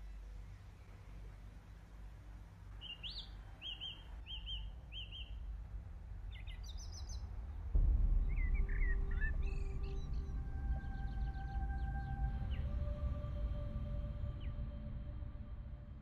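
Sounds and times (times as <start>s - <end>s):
low steady rumble: 0.0s - 16.0s
birds chirping: 2.7s - 5.4s.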